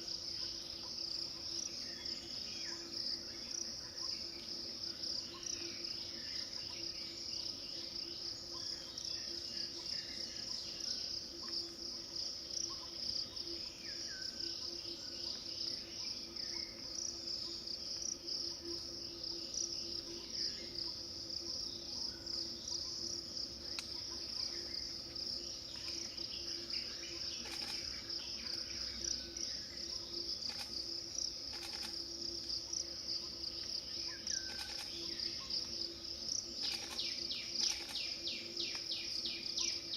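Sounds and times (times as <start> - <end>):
insects chorus: 0.0 - 39.9
faint bird chirps: 23.6 - 30.8, 31.5 - 32.0, 33.2 - 35.7, 36.6 - 39.9.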